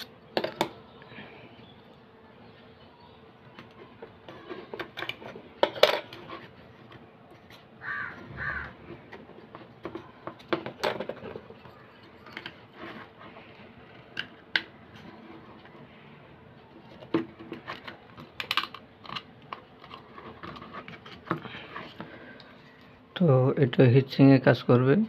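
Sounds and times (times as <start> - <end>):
small parts clicking and tapping: 16.9 - 22.9.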